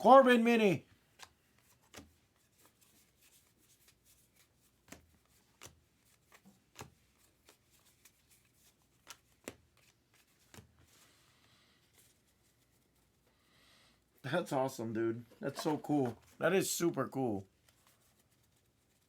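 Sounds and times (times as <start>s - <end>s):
trading cards flipped: 1.1s - 11.0s, 15.3s - 16.4s.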